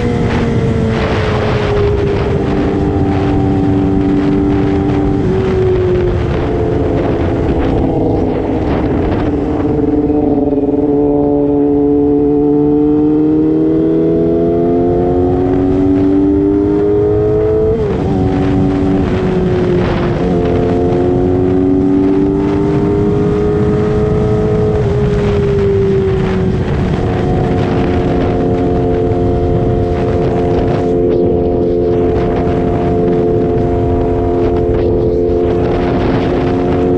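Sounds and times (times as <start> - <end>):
motorcycle engine under load: 0.0 - 36.9
wind and road noise: 0.0 - 36.9.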